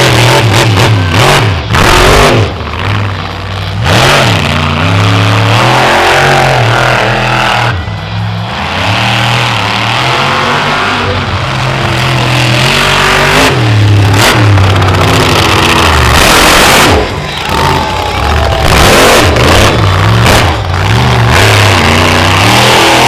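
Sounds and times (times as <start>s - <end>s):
monster truck engine revving: 0.0s - 23.0s.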